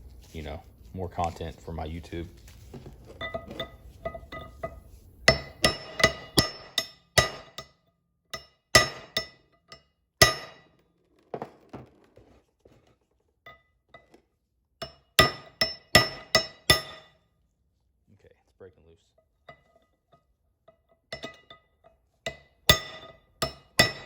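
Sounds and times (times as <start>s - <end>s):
hammer striking steel: 3.2s - 9.5s, 10.2s - 10.8s, 14.8s - 17.2s, 21.1s - 21.6s, 22.3s - 24.0s.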